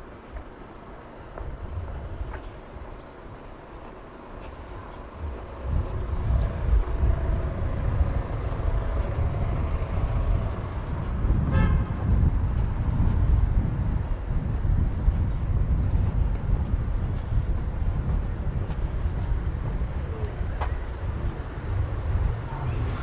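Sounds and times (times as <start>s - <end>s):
traffic rumble: 0.0s - 23.0s
car horn toot: 11.4s - 12.0s.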